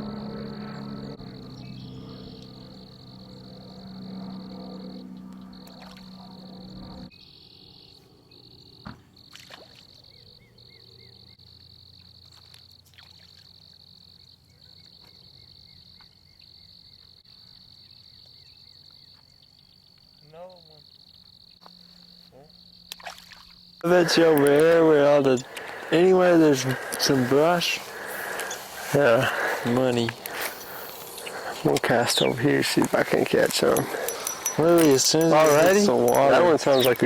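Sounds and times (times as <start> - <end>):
background music with droning tone: 0.0 - 8.8, 23.8 - 37.0
frog chorus trilling: 0.0 - 37.0.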